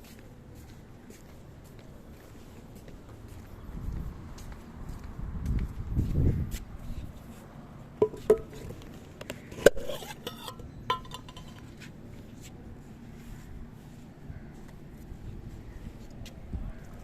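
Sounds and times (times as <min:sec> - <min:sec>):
clinks against a dish: 0:09.9 - 0:11.7.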